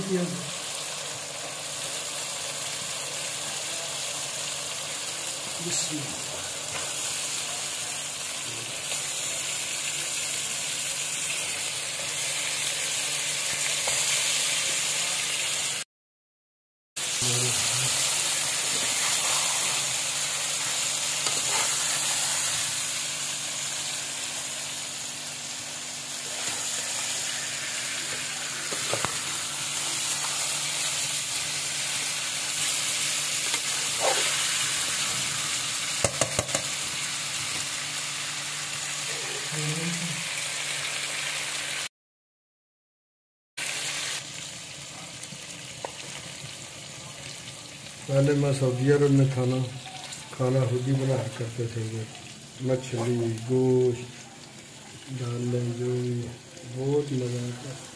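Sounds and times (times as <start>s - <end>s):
food sizzling in oil: 0.0s - 15.9s, 17.0s - 41.9s, 43.6s - 57.9s
metal spoon clicking on pan: 36.0s - 36.7s.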